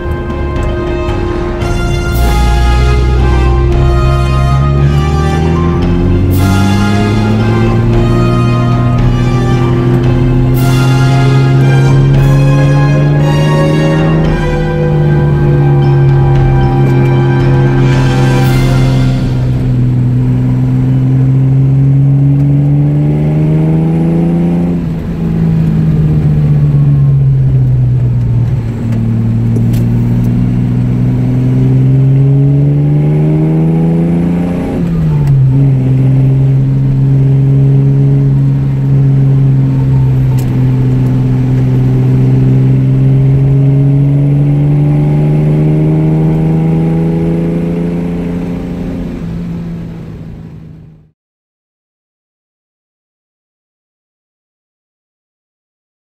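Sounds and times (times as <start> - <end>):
car engine accelerating: 0.0 - 51.2.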